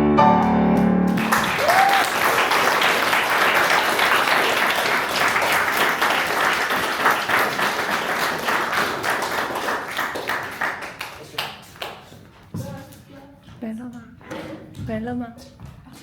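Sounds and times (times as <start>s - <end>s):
audience applauding: 0.8s - 12.2s.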